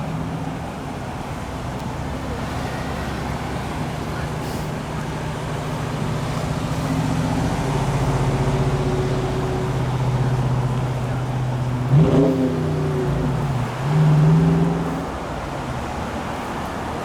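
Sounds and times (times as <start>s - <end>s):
car engine running: 3.8s - 16.6s
engine revving: 6.7s - 15.7s.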